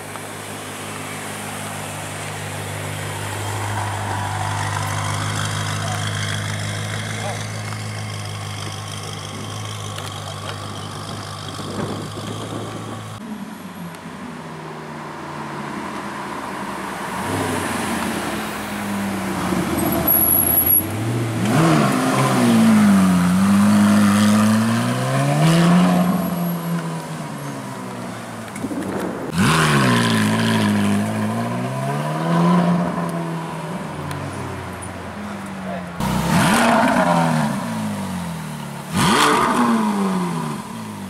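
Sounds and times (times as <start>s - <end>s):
car engine running low: 0.0s - 14.3s
sports car accelerating: 13.9s - 41.0s.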